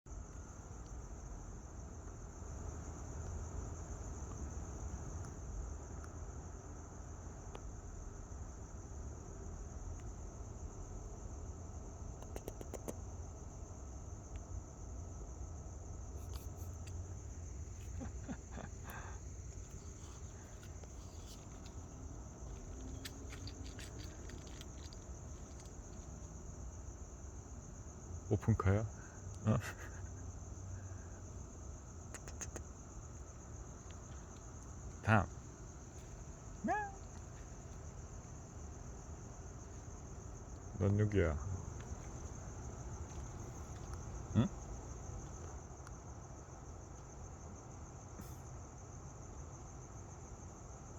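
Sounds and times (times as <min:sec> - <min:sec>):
insects trilling: 0:00.1 - 0:50.9
faint ticks: 0:12.2 - 0:13.0, 0:16.2 - 0:26.6, 0:32.0 - 0:38.1, 0:41.6 - 0:46.0.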